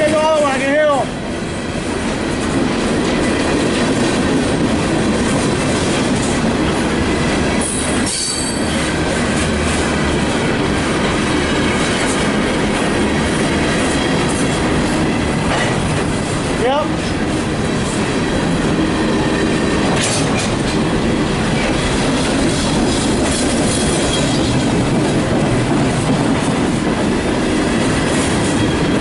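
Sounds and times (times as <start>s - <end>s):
train wheels rumbling on rails: 0.0s - 29.0s
high wheel squeal: 7.6s - 8.9s.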